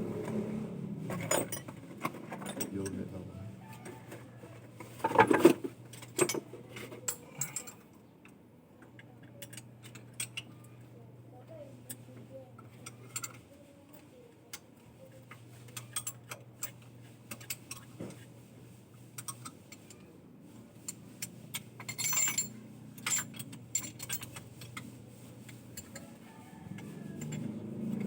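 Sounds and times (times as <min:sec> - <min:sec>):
metallic clicks and clinks of tools: 0:01.1 - 0:03.0, 0:05.0 - 0:10.6, 0:15.3 - 0:18.2, 0:19.2 - 0:20.0, 0:20.8 - 0:28.0
metallic jangling: 0:21.2 - 0:26.4.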